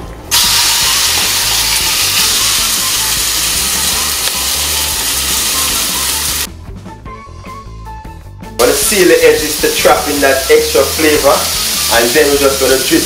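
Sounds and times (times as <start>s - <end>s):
chicken sizzling in hot oil: 0.3s - 6.5s, 8.7s - 13.0s.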